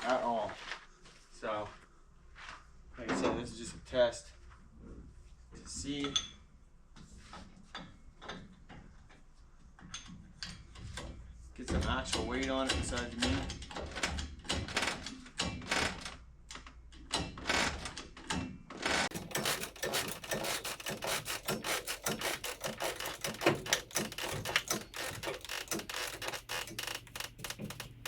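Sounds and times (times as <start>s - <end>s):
rigging knocks and rubbing: 7.0s - 16.1s, 17.2s - 28.0s
hoist ratchet clicking: 19.1s - 28.0s.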